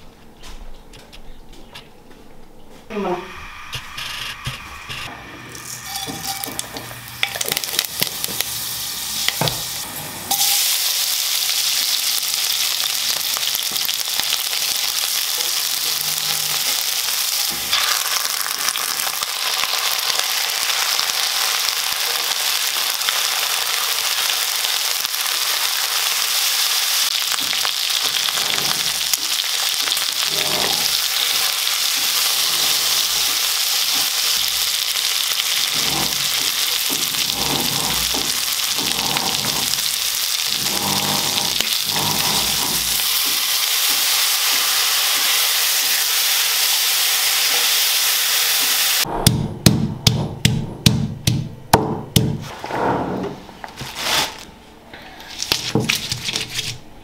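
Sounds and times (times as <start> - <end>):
food sizzling in hot oil: 5.4 - 49.1.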